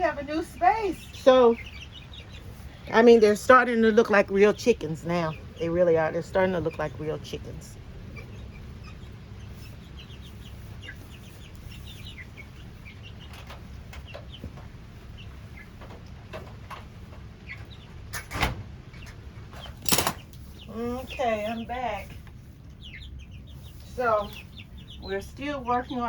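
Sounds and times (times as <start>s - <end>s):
chicks peeping: 0.0s - 26.0s
low steady rumble: 0.0s - 26.0s.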